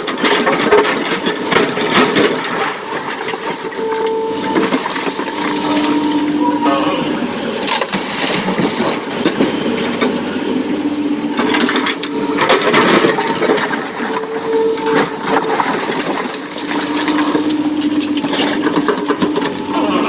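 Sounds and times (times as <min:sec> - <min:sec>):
clattering and knocks: 0:00.0 - 0:03.8, 0:11.4 - 0:19.7
excavator engine and hydraulic hum: 0:00.0 - 0:20.0.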